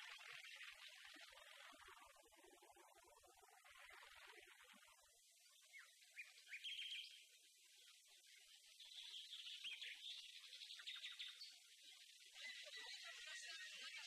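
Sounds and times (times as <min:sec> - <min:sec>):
faint bird chirping: 0:03.4 - 0:14.0.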